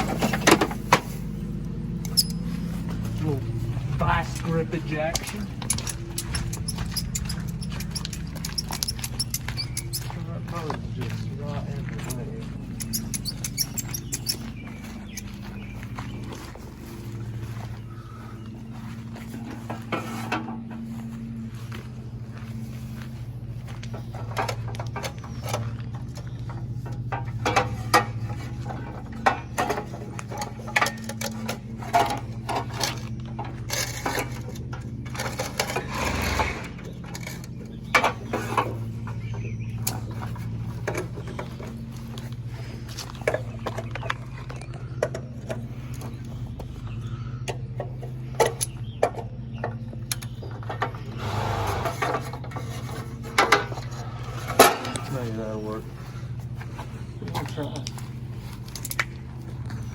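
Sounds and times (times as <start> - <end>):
steady low hum: 0.0 - 59.9
steel parts and tools clanking: 2.0 - 10.6, 11.9 - 15.4, 24.1 - 46.1.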